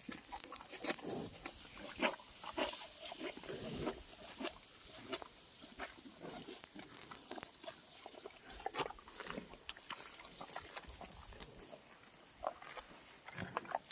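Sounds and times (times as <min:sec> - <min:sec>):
water buffaloes calling: 0:00.0 - 0:09.0.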